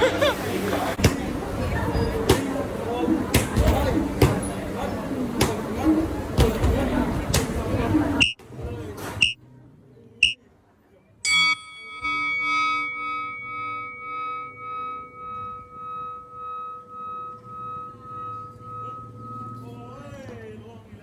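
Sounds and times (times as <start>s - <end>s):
bell-like metal tone ringing: 11.3s - 21.0s.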